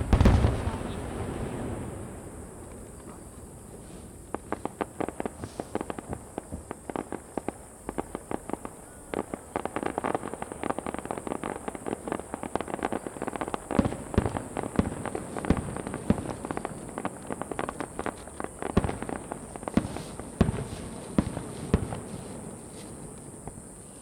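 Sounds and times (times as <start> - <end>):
firework shells bursting: 0.0 - 10.6.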